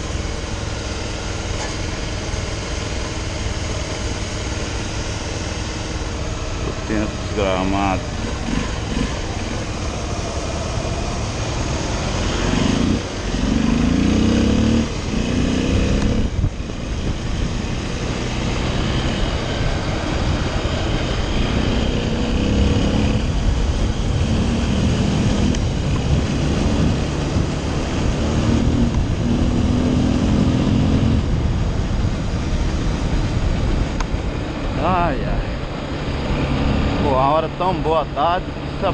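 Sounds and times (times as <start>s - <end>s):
wind rush on microphone: 4.5s - 37.3s
small motorcycle engine accelerating: 6.7s - 16.4s.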